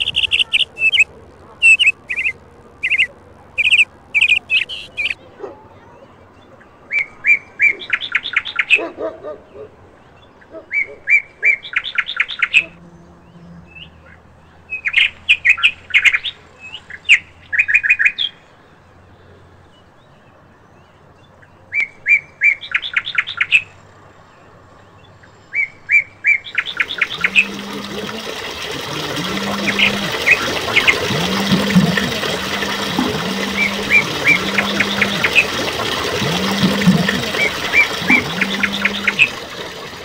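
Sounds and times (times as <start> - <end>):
songbird singing: 0.0 - 5.3, 19.2 - 40.0.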